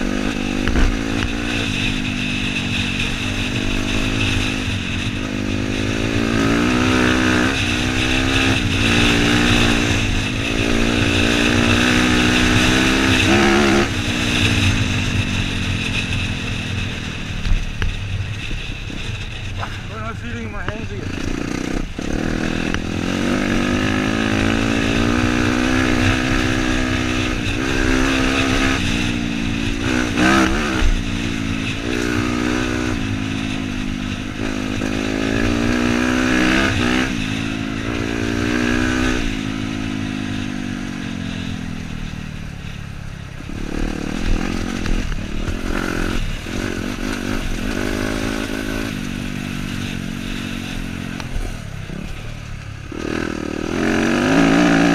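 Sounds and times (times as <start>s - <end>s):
dirt bike engine: 0.0s - 54.9s.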